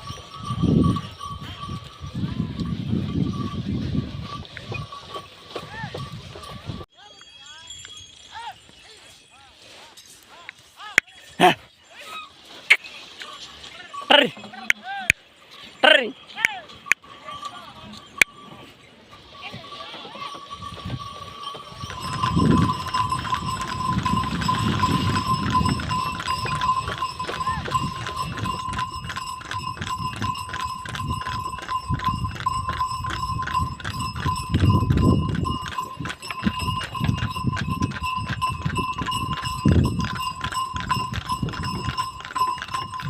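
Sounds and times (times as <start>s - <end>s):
hoofbeats clattering: 0.0s - 43.0s
high ringing tone: 15.8s - 43.0s.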